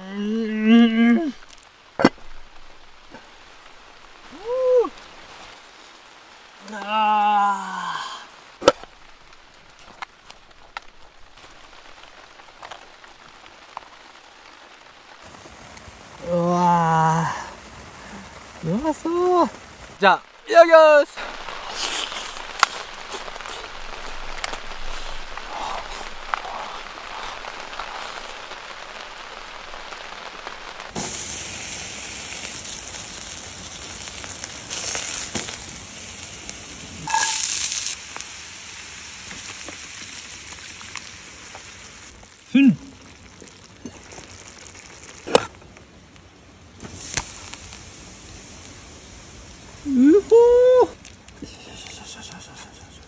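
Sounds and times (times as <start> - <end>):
rain pattering on tent canopy: 0.0 - 53.0
wet chewing: 21.3 - 29.2.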